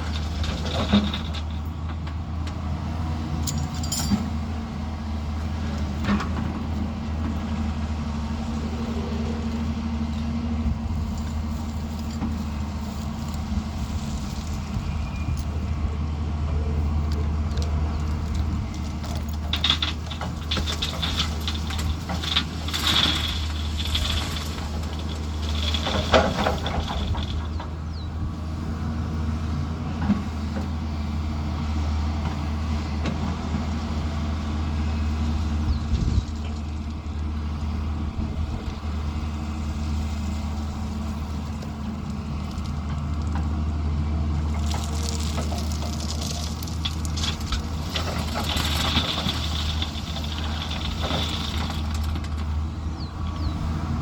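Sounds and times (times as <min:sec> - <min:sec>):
machinery working clatter: 0:00.0 - 0:02.6, 0:17.0 - 0:28.3, 0:44.3 - 0:53.6
diesel engine droning: 0:00.0 - 0:54.0.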